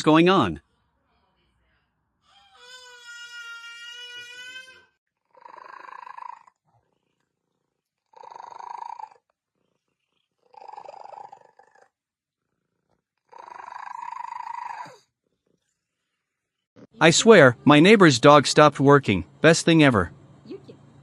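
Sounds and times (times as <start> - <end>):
cat purring loudly: 5.2 - 15.7.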